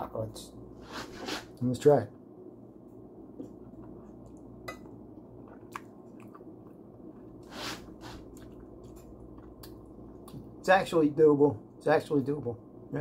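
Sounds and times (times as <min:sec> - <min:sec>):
low steady hum: 0:00.0 - 0:13.0
person chewing: 0:03.3 - 0:10.4.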